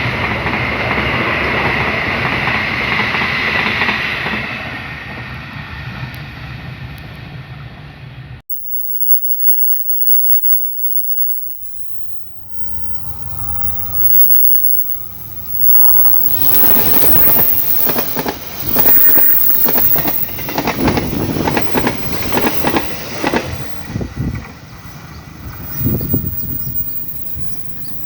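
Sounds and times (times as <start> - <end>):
train rumbling: 0.0 - 8.4, 11.9 - 28.0
train wheels clacking: 15.2 - 28.0.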